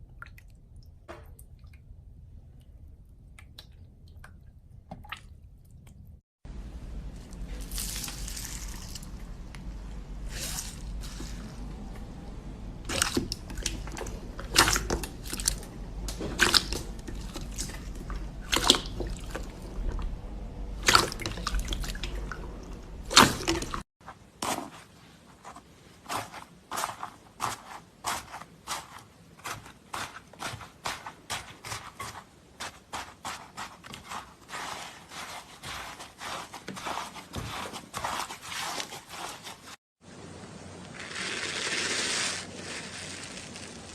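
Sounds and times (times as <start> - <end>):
low steady hum: 0.0 - 23.8
slime squelching and popping: 12.9 - 19.6.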